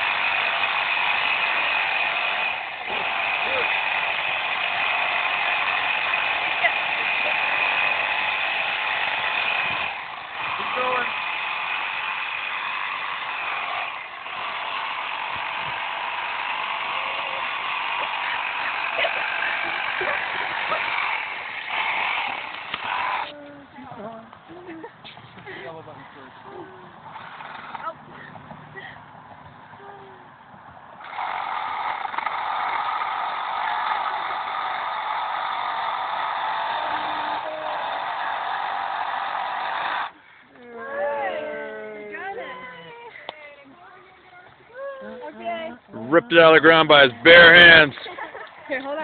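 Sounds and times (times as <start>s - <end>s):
power saw cutting wood: 0.0s - 23.4s, 27.1s - 28.0s, 31.0s - 40.2s, 46.1s - 48.4s.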